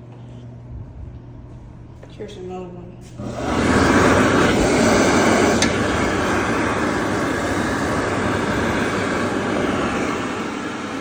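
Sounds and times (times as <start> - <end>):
hand dryer blowing: 3.2 - 11.0.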